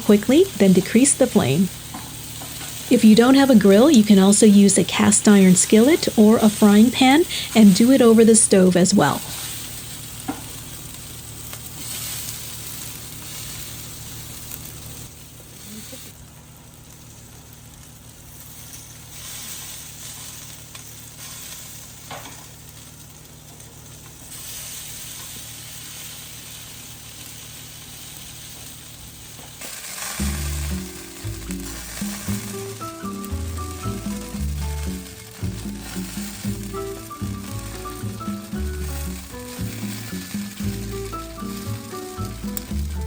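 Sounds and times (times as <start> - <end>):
chicken sizzling on a grill: 0.0 - 43.0
background music: 30.2 - 43.0.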